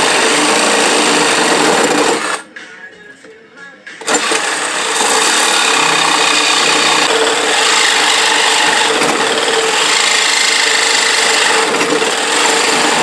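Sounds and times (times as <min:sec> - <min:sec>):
reciprocating saw cutting metal: 0:00.0 - 0:02.5, 0:04.0 - 0:13.0.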